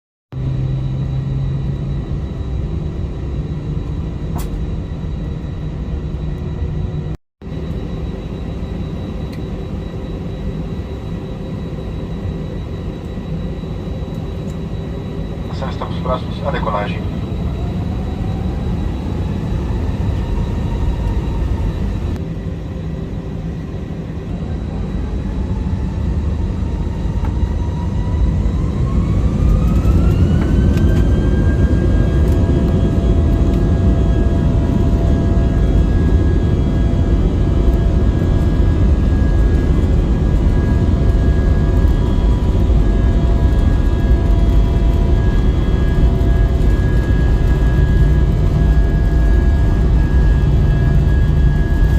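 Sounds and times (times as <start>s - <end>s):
rising engine whine: 0.3s - 51.9s
jet engines spooling up: 0.4s - 51.9s.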